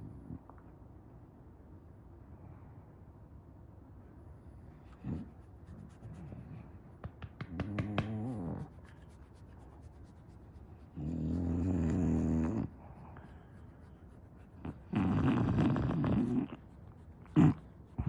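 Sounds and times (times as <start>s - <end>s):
dog snoring: 10.9s - 13.3s, 14.6s - 18.0s.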